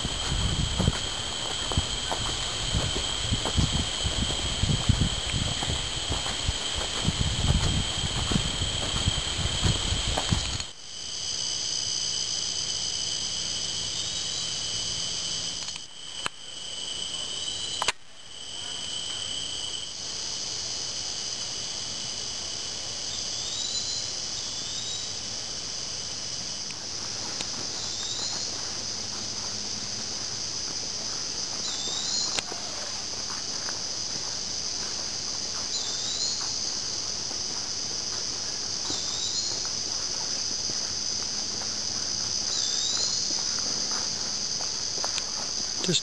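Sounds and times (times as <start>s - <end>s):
low rumbling noise: 0.0s - 10.6s
insects singing: 0.0s - 46.0s.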